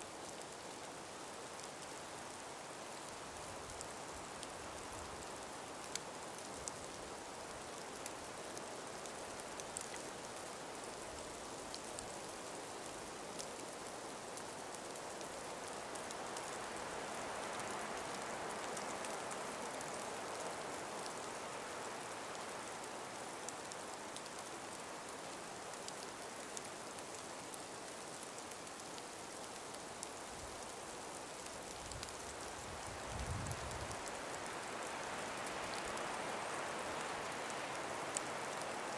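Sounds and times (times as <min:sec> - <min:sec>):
light wind through forest: 0:00.0 - 0:38.9
faint ticks: 0:03.0 - 0:21.3, 0:23.5 - 0:38.9.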